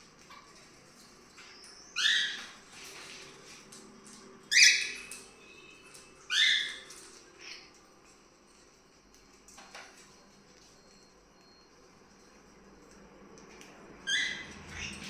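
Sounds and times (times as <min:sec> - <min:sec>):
faint bird chirps: 0:04.5 - 0:08.0
cockatiel screechy calls: 0:14.1 - 0:15.0.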